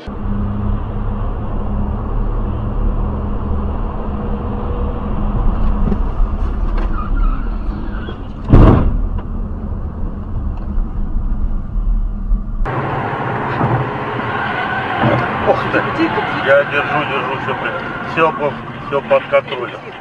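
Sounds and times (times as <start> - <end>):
car engine and road rumble: 0.0 - 20.0
sudden loud bang: 8.5 - 9.1.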